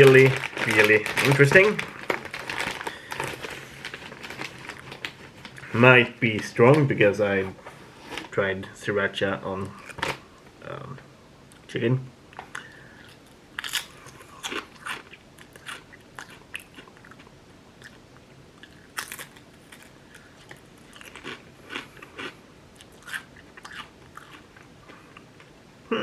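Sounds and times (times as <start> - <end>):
crunching potato chips: 0.0 - 6.5, 12.6 - 18.0, 18.6 - 25.2.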